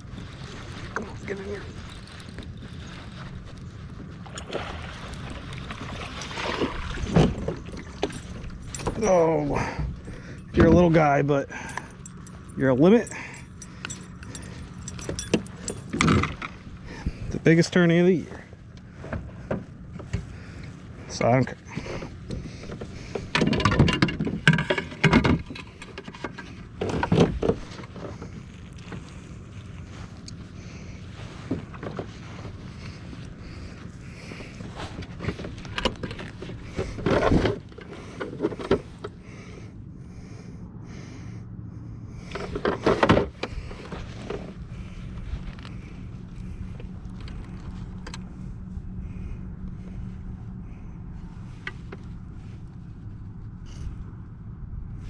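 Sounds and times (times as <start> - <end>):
water splashing: 0.0 - 9.7.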